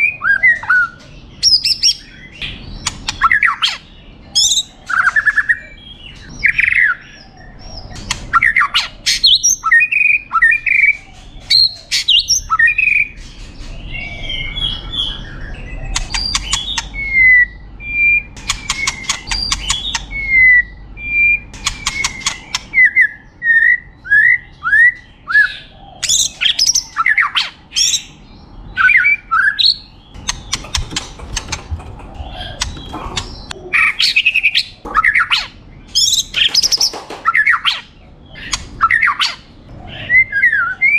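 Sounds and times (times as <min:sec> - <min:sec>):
bird rattling chatter: 0:30.2 - 0:33.6.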